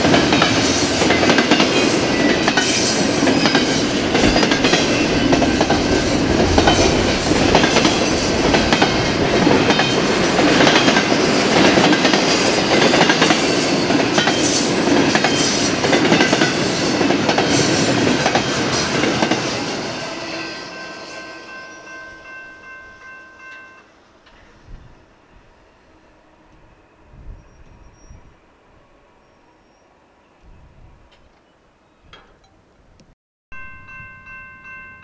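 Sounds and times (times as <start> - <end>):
freight train wheels clicking: 0.0 - 19.6.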